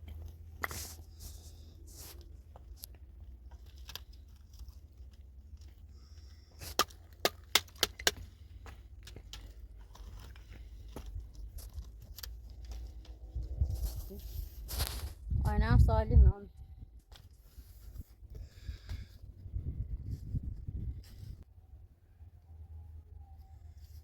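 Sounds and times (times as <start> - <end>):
low steady rumble: 8.2 - 23.8.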